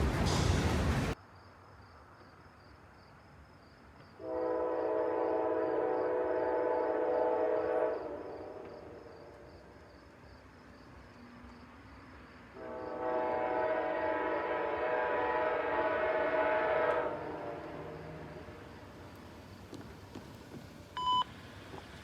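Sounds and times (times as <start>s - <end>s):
locomotive air horn blasts: 4.2s - 9.0s, 12.6s - 18.6s.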